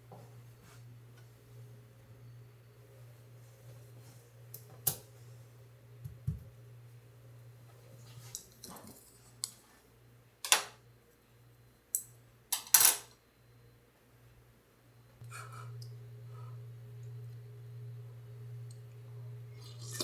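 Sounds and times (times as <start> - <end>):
steady low hum: 14.2 - 20.0.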